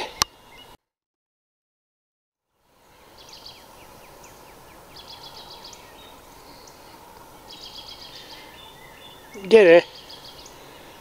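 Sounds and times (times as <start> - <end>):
small birds chirping: 0.0 - 0.8, 2.7 - 11.0
steady background hiss: 2.5 - 11.0.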